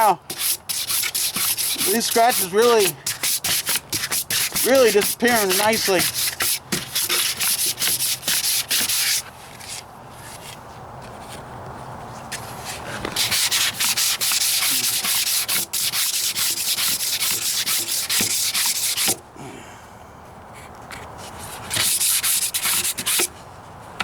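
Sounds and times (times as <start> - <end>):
hand sanding: 0.0 - 9.2, 12.6 - 19.2, 21.3 - 23.3.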